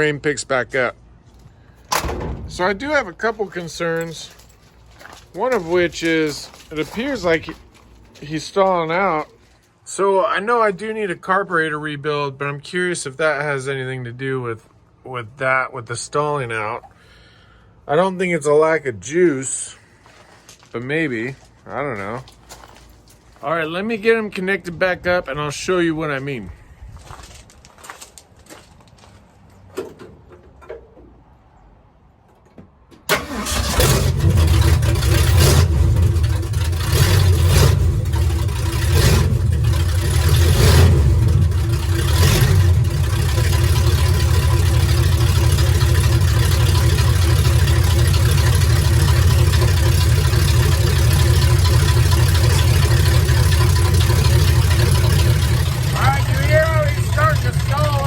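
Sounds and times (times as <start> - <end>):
truck engine revving and idling: 33.2 - 58.0.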